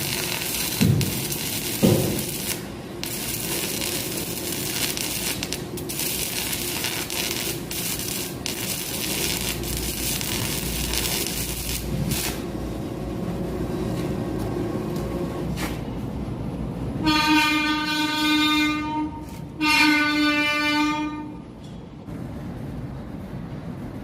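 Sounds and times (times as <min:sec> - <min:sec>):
welding arc crackling: 0:00.0 - 0:12.8.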